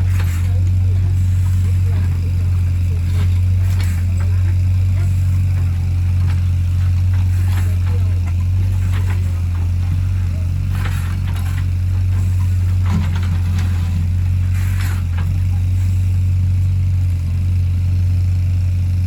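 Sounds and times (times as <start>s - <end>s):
short clatters: 0.0s - 16.0s
excavator diesel engine running: 0.0s - 19.0s.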